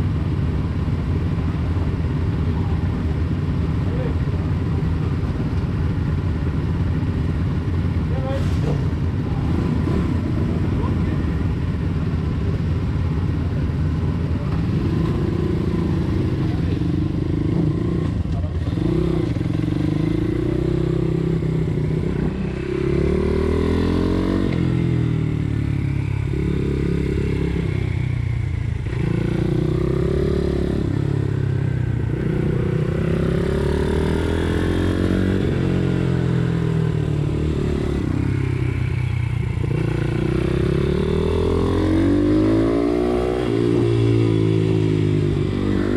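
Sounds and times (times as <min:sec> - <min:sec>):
motorbike engine revving: 0:39.4 - 0:45.9.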